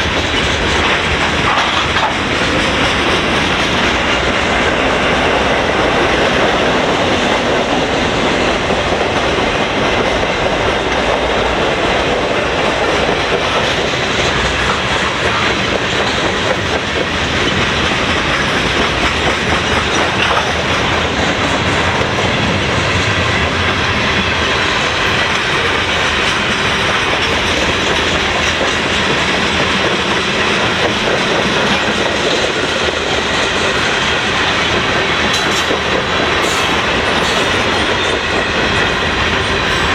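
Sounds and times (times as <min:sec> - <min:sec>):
freight train rolling past: 0:00.0 - 0:39.9
wheels clacking over rail joints: 0:00.0 - 0:39.9.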